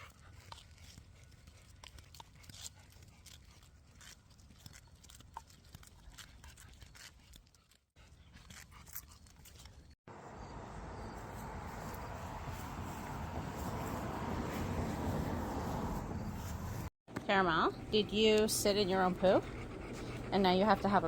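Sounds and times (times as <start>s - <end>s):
dog clicks and crunches: 0.0s - 9.9s
low rumble: 10.3s - 16.9s.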